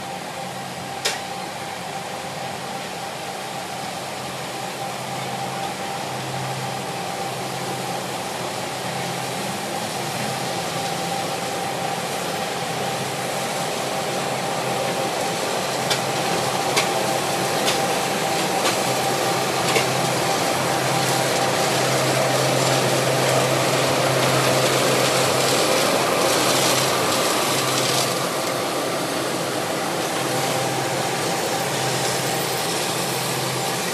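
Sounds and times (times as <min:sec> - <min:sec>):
machinery engine droning: 0:00.0 - 0:33.9.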